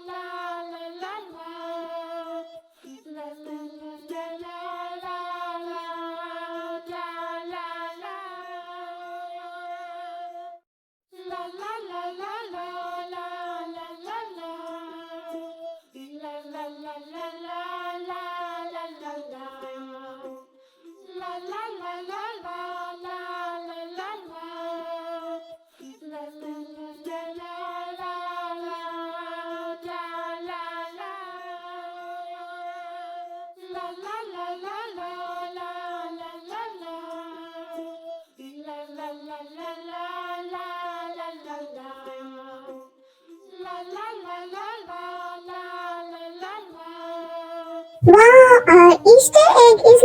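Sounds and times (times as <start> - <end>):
childlike voice singing la la la: 48.0 - 50.0.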